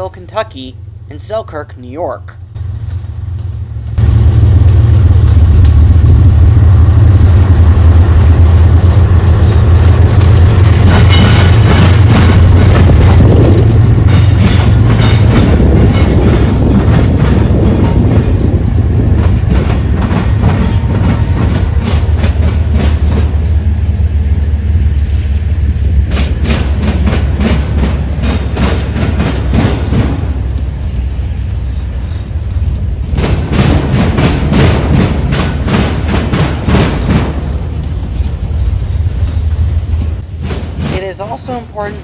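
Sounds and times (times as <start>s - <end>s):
train rumble: 0.0s - 42.0s
train wheels clicking and knocking: 8.0s - 24.6s, 25.7s - 42.0s.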